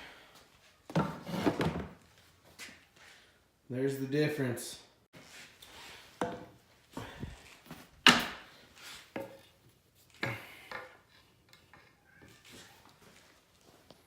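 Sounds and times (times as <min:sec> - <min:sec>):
hard objects knocking and scraping: 0:00.9 - 0:02.0.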